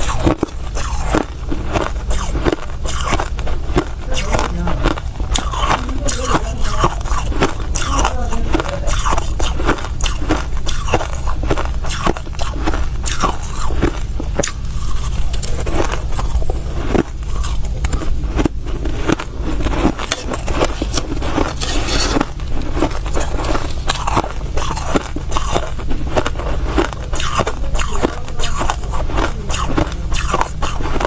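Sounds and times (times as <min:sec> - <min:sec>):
chewing crushed ice: 0:00.0 - 0:31.0
steady low hum: 0:00.0 - 0:31.0.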